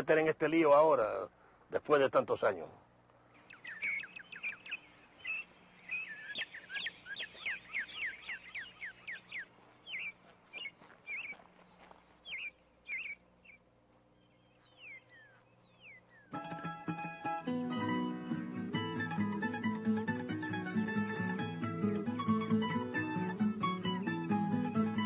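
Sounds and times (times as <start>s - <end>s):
birds chirping: 0.0s - 17.0s
plucked guitar music: 16.3s - 25.0s.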